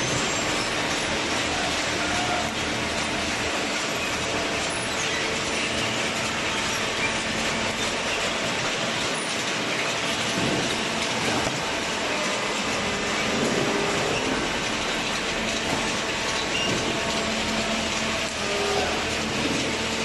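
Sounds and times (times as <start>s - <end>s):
baler mechanical noise: 0.0s - 20.0s.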